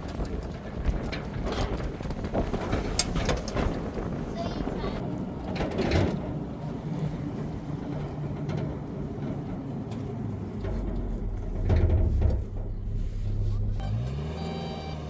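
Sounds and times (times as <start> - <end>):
vehicle engine running: 6.3 - 15.0.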